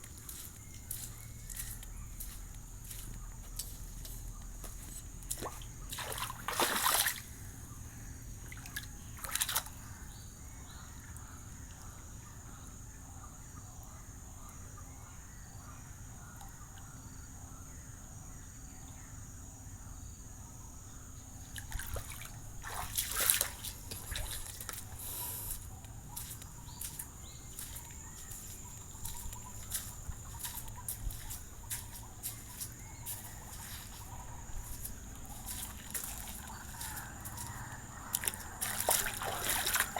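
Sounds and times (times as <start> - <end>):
water splashing and sloshing: 4.7 - 7.7, 8.4 - 10.0, 21.4 - 39.9
water trickling and dripping: 5.3 - 7.3, 21.6 - 24.9, 26.2 - 37.5, 38.1 - 39.9.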